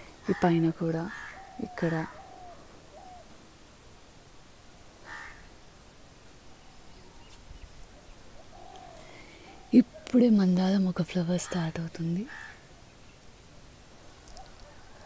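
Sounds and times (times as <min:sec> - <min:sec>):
bird calling: 0:06.6 - 0:10.2.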